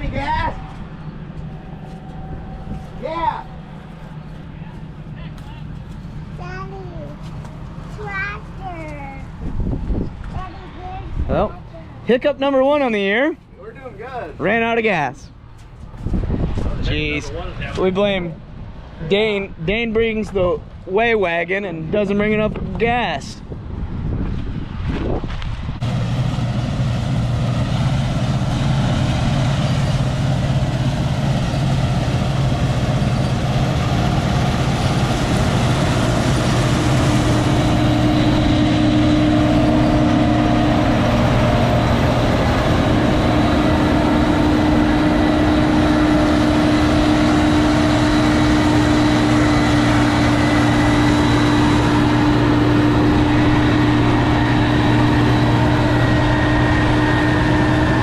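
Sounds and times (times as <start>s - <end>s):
faint high whine: 0.0s - 5.9s
heavy farm machine engine: 0.0s - 10.3s, 25.5s - 58.0s.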